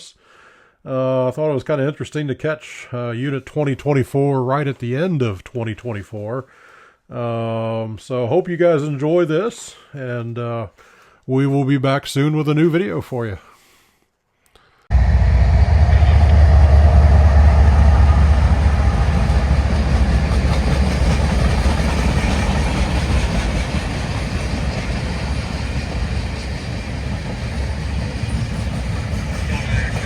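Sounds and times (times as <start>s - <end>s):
freight train rumbling past: 14.9s - 30.0s.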